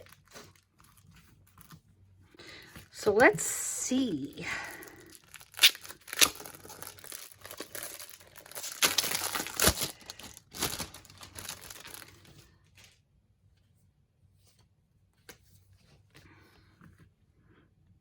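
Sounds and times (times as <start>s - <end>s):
paper wrapping crinkling: 0.0s - 1.8s, 2.6s - 13.0s.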